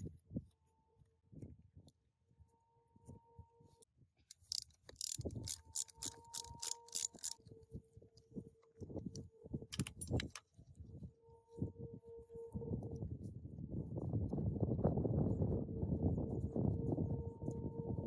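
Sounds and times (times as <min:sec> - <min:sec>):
metal tools clinking: 0:04.3 - 0:07.4, 0:09.7 - 0:10.4.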